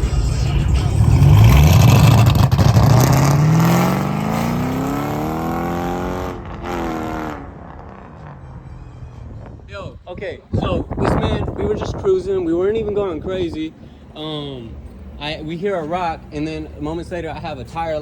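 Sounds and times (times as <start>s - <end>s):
car engine revving: 0.0s - 9.7s.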